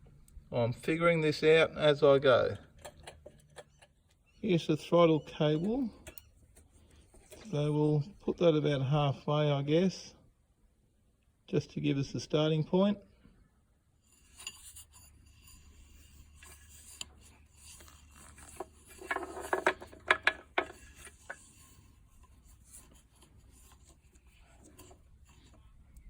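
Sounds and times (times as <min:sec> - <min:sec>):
clicks and metal knocks: 0:02.6 - 0:04.2, 0:16.4 - 0:21.7
hands rubbing mower controls: 0:15.6 - 0:26.0.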